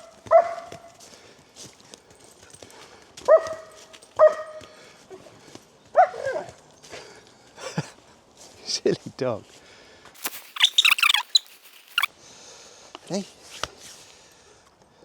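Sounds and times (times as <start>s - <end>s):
dog barking: 0.0s - 1.0s, 3.3s - 4.6s, 6.0s - 6.5s.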